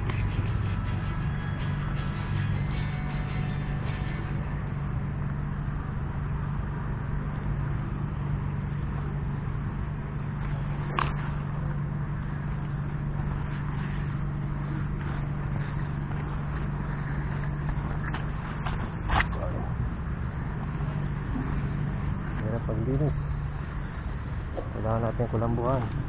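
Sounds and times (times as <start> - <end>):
low mechanical hum: 0.0 - 26.0
sharp click: 25.8 - 26.0.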